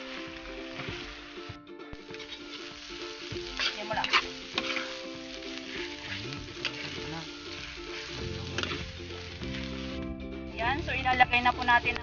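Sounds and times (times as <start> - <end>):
food sizzling in oil: 0.0 - 12.0
spatula scraping a pan: 2.0 - 10.0.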